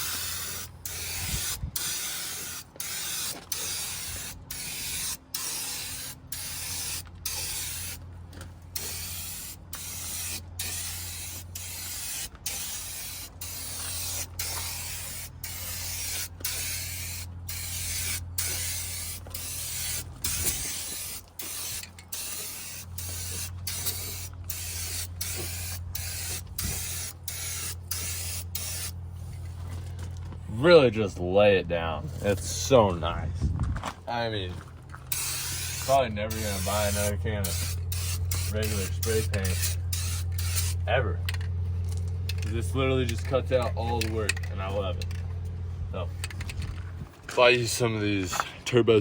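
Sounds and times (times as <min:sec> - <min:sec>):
spray paint can hissing: 0:00.0 - 0:08.0, 0:08.8 - 0:29.0, 0:35.1 - 0:40.8
steady low hum: 0:00.0 - 0:49.0.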